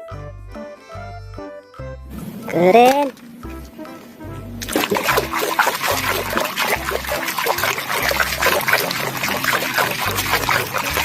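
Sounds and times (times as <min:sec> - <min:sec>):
background music: 0:00.0 - 0:11.0
water splashing over plastic toy: 0:02.4 - 0:03.6, 0:04.6 - 0:11.0.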